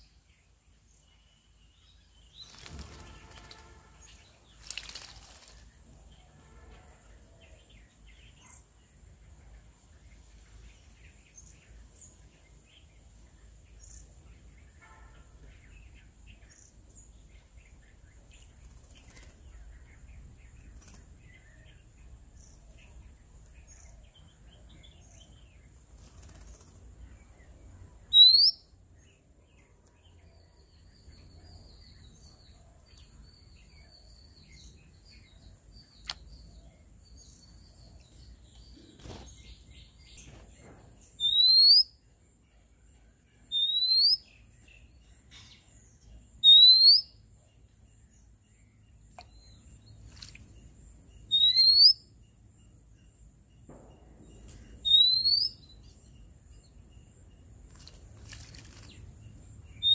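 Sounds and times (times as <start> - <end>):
birds chirping: 0.0 - 59.9
rising bird whistle: 28.1 - 28.6, 41.2 - 41.9, 43.6 - 44.2, 46.4 - 47.1, 51.3 - 52.0, 54.8 - 55.6.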